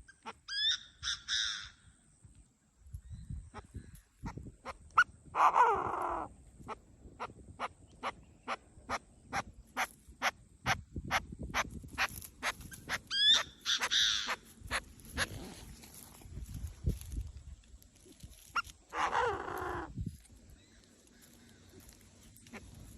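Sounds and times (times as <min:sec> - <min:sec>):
bird calling: 0:03.3 - 0:15.6, 0:18.4 - 0:22.9.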